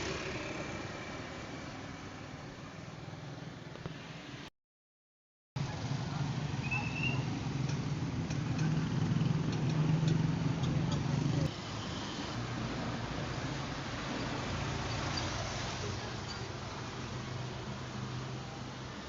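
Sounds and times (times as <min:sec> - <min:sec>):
vehicle engine humming: 0:00.0 - 0:03.8.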